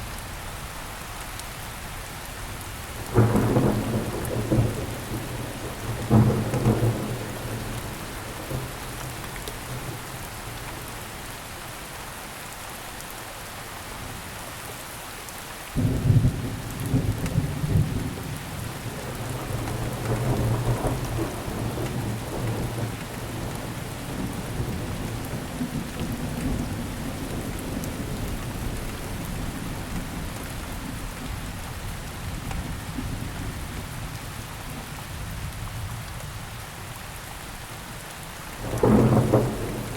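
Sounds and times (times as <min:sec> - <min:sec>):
steady rainfall: 0:00.0 - 0:39.9
rolling thunder: 0:03.1 - 0:10.0, 0:15.8 - 0:30.2, 0:38.6 - 0:39.9.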